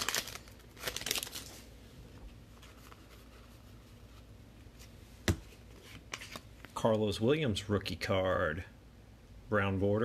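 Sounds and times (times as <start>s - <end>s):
cards and wrapper rustling: 0.0s - 1.7s.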